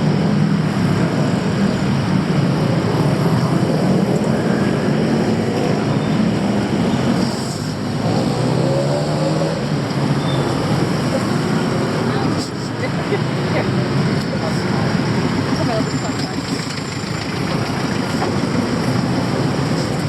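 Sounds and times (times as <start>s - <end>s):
car and motorbike engines passing: 0.0s - 20.0s
engine speeding up: 2.4s - 12.1s.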